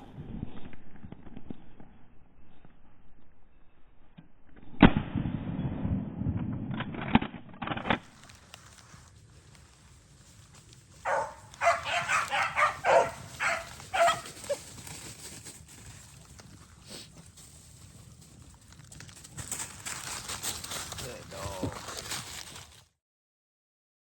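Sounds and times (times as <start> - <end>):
hounds baying: 11.0 - 14.8.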